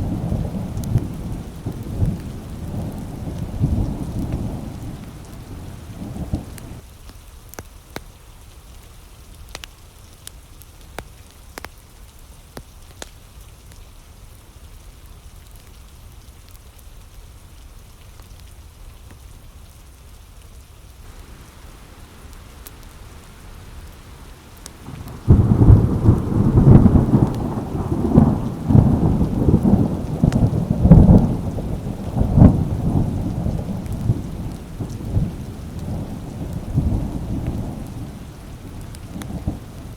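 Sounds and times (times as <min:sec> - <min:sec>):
thunder rumbling: 0:00.0 - 0:06.8, 0:21.1 - 0:39.9
light rain: 0:00.0 - 0:39.9.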